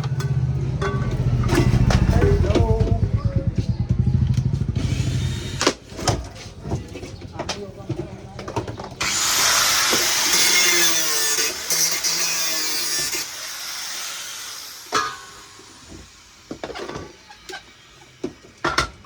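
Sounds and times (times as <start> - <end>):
electric motor whirring: 4.4 - 5.8, 9.0 - 14.9.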